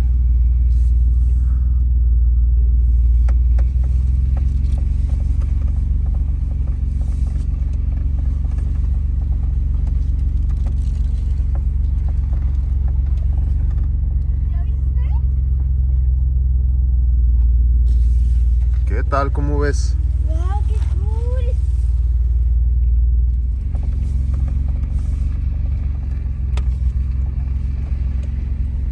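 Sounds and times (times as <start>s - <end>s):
car cabin rumble: 0.0s - 28.9s
small knocks and rattles: 3.2s - 14.5s.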